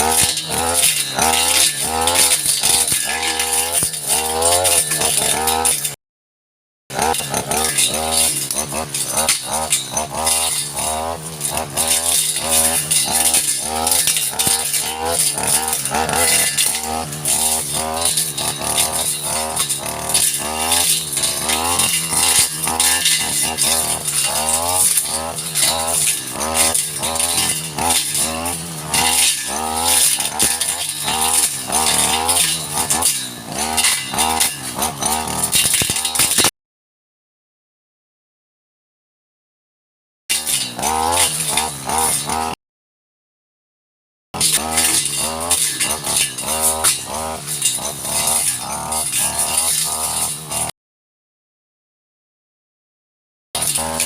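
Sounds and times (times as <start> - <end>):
brush cutter engine running hard: 0.0 - 6.0, 6.9 - 36.5, 40.3 - 42.6, 44.4 - 50.7, 53.6 - 54.0.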